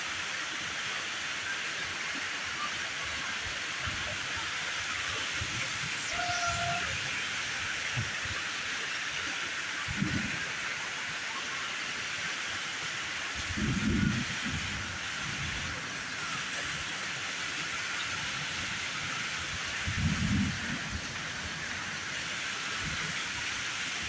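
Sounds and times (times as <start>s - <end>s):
heavy rain pouring: 1.8s - 24.0s.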